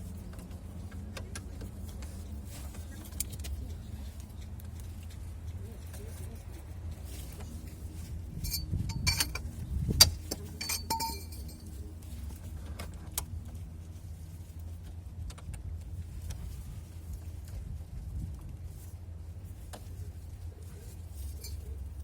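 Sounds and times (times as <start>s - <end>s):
steady low hum: 0.0s - 22.0s
metal tools clinking: 8.4s - 11.8s, 21.2s - 22.0s.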